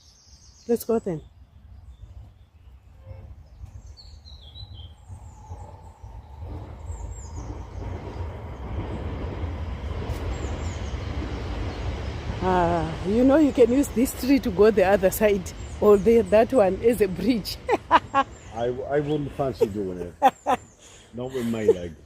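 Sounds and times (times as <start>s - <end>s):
small birds chirping: 0.0s - 22.0s
low wind-like rumble: 0.3s - 22.0s
steady rushing noise: 4.3s - 20.1s.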